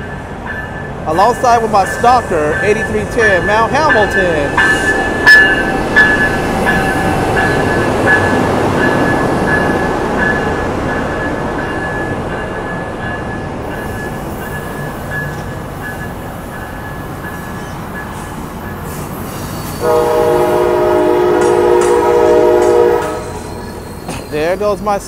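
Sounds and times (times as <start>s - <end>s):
train cars rumbling past: 0.0s - 25.0s
high wheel squeal: 17.4s - 19.9s, 23.2s - 24.6s
train horn: 19.8s - 23.6s.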